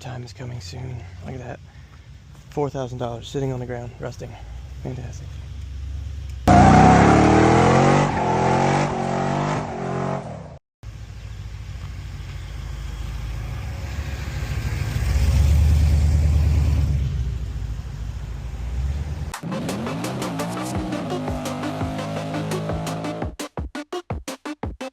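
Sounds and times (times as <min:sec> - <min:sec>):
car engine revving: 0:06.5 - 0:10.5, 0:14.6 - 0:23.4.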